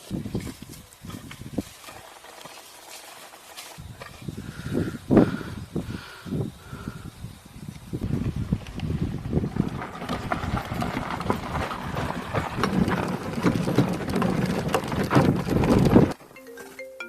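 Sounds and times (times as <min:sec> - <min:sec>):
hooves clopping: 0:00.0 - 0:05.9, 0:06.6 - 0:16.8
outdoor background noise: 0:00.0 - 0:17.0
bell-like mallet notes: 0:16.4 - 0:17.0.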